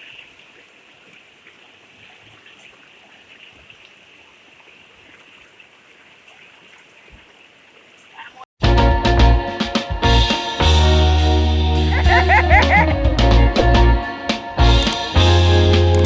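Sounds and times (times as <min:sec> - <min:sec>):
small ticks and splashes: 0:00.0 - 0:08.3
river water running: 0:00.0 - 0:08.5.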